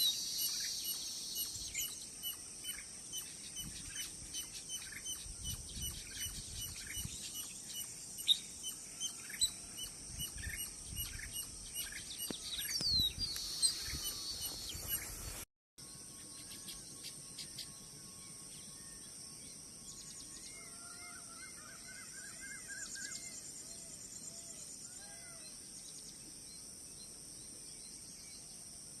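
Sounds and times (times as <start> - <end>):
steady high hiss: 0.0 - 5.3, 5.9 - 18.4
birds chirping: 0.0 - 15.5.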